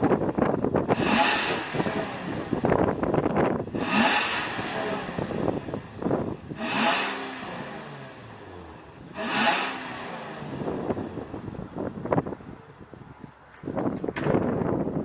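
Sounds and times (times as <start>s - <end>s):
car engine revving: 0.8s - 11.6s.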